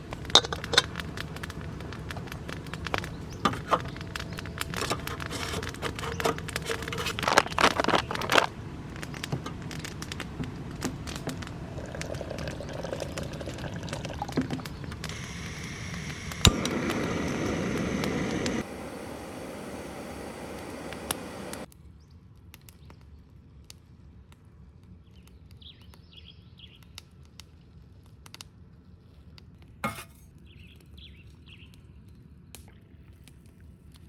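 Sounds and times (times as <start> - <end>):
steady rushing noise: 14.9 - 21.7.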